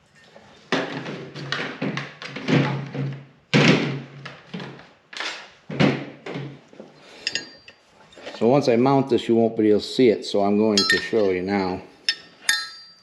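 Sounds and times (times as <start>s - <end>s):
metal bracket clanking against engine: 10.8s - 11.3s, 12.1s - 13.0s.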